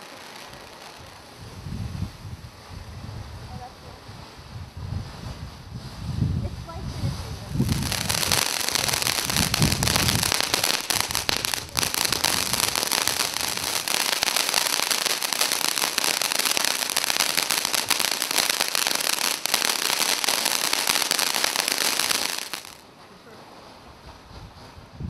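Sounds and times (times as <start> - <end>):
firework fountain hissing and crackling: 0.0 - 25.0.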